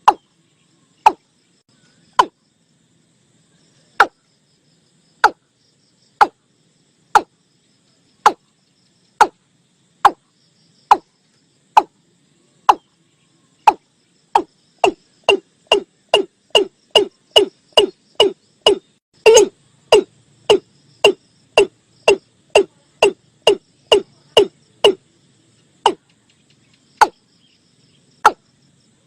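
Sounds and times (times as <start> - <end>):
bird calling in hollow notes: 2.1 - 2.4, 14.4 - 25.0.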